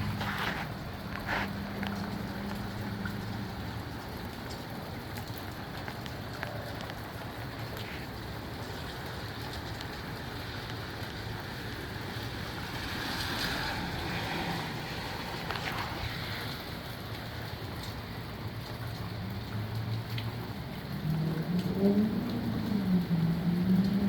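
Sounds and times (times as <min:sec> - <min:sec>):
rain: 0:00.0 - 0:24.0.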